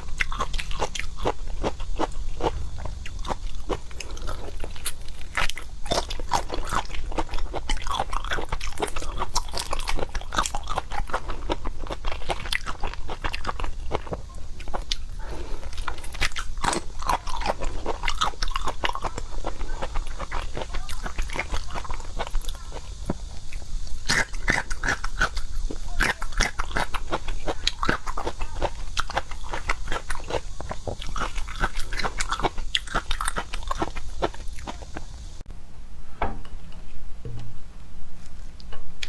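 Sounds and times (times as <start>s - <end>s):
chewing and biting seafood: 0.0s - 35.3s.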